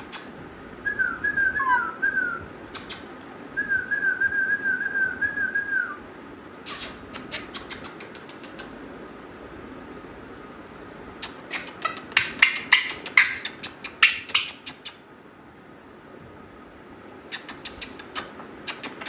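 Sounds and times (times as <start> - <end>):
parrot whistling: 0.0 - 0.3, 0.9 - 5.9, 11.2 - 15.0
sharp clicks: 7.6 - 8.7.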